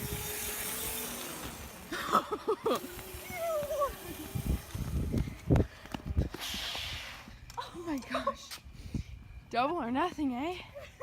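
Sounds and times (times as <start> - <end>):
mini motorcycle motor whining: 0.0 - 7.3.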